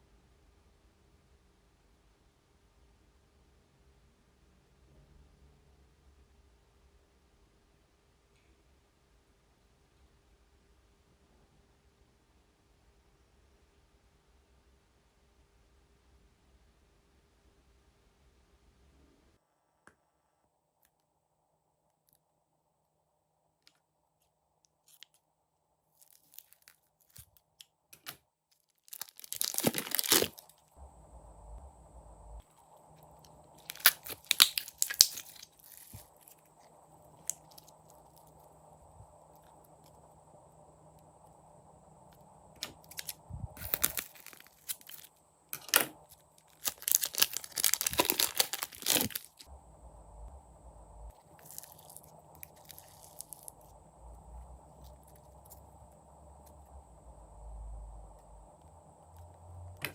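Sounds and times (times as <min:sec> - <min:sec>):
slime crackling and popping: 0:26.0 - 0:27.3, 0:28.8 - 0:30.6, 0:33.6 - 0:36.5, 0:42.6 - 0:45.1, 0:46.4 - 0:49.5, 0:51.3 - 0:53.7
loud crinkling tearing: 0:28.8 - 0:30.6, 0:33.6 - 0:36.4, 0:42.6 - 0:45.7, 0:46.5 - 0:49.5, 0:51.4 - 0:53.5.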